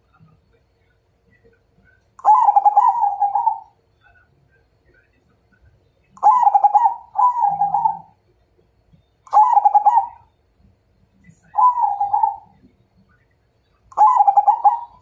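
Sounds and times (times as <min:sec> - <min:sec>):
dove cooing: 0:02.2 - 0:03.8, 0:06.2 - 0:08.2, 0:09.3 - 0:10.3, 0:11.5 - 0:12.6, 0:13.9 - 0:15.0.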